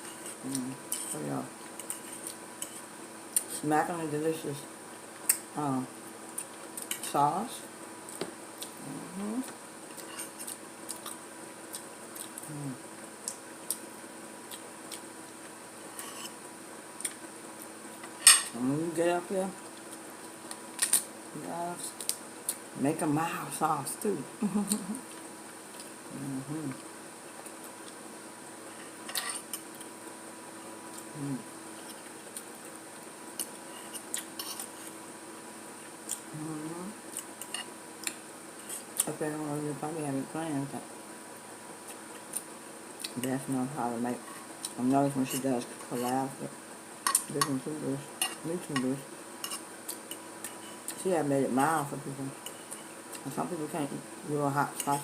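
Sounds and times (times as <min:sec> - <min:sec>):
person humming: 0:00.4 - 0:01.5, 0:08.8 - 0:09.5, 0:12.4 - 0:12.8, 0:26.1 - 0:26.8, 0:31.1 - 0:31.5, 0:36.3 - 0:37.0
utensils scraping a plate: 0:15.9 - 0:16.4.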